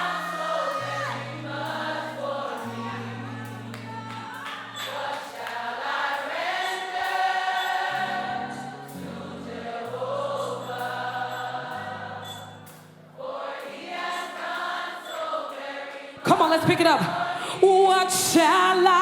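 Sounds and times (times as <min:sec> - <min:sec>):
keyboard chords: 0:00.0 - 0:14.7
gospel choir singing: 0:00.0 - 0:19.0.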